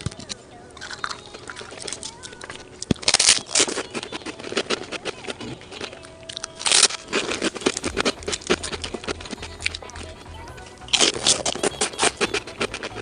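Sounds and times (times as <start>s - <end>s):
shells crunching and scraping: 0.8s - 13.0s.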